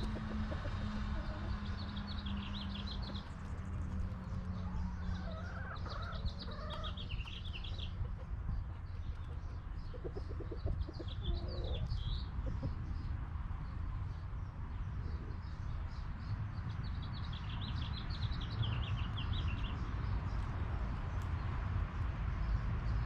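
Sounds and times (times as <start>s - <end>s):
hens clucking: 0.0s - 1.8s, 4.5s - 12.8s.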